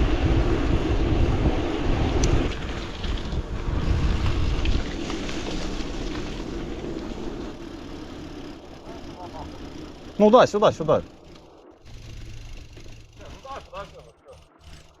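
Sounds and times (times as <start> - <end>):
wind buffeting microphone: 0.0 - 15.0
bicycle clicks and rattles: 4.1 - 15.0.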